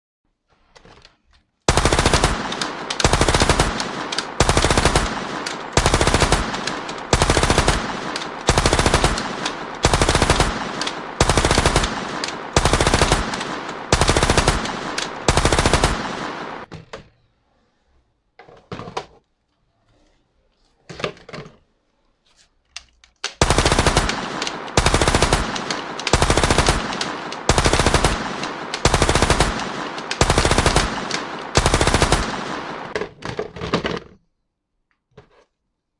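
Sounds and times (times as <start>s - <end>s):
toy gun machine-gun bursts: 1.7s - 16.7s, 23.2s - 33.0s
faint clicks: 2.1s - 15.3s, 22.7s - 33.0s.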